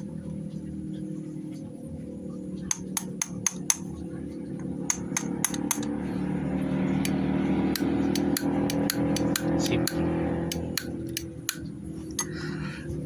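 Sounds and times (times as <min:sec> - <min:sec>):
steady musical hum: 0:00.0 - 0:13.0
metallic tapping of hand tools: 0:02.7 - 0:03.9, 0:04.8 - 0:05.9, 0:07.0 - 0:12.3.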